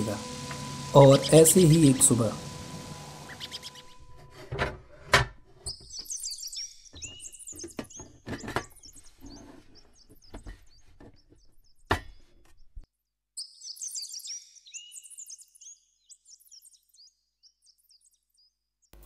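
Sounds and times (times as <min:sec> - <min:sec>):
small birds chirping: 0:00.0 - 0:04.1, 0:05.6 - 0:19.0
things handled in metal trunk: 0:07.0 - 0:12.5.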